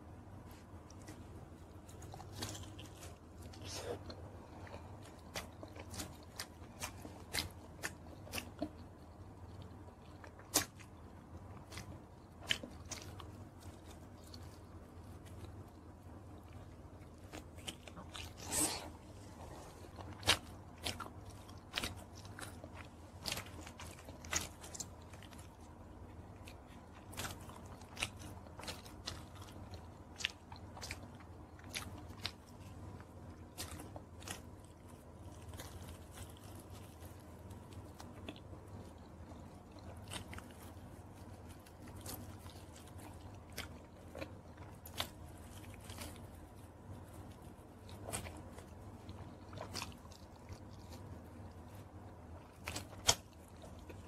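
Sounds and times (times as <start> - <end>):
crunchy chewing: 0.0 - 54.0
steady low hum: 0.0 - 54.0.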